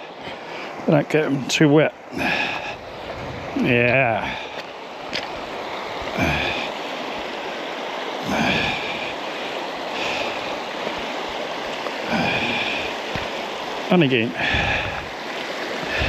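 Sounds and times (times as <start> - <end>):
river rushing over rocks: 0.0 - 16.0
man breathing hard or grunting: 2.1 - 4.6, 6.1 - 6.8, 8.2 - 11.2, 12.0 - 13.0, 14.3 - 15.2, 15.8 - 16.0.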